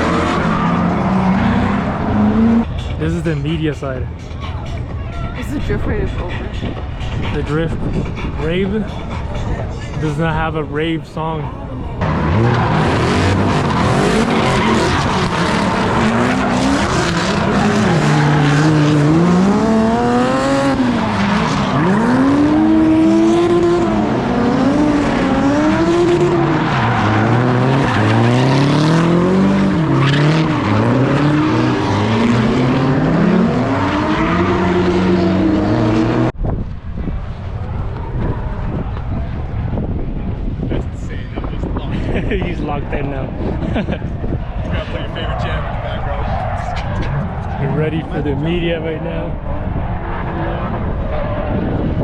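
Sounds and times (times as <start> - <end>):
tire squeal and skidding: 0.0 - 2.7, 12.1 - 36.2, 44.4 - 48.7, 49.4 - 52.0
car engine revving: 0.0 - 3.6, 12.0 - 36.4.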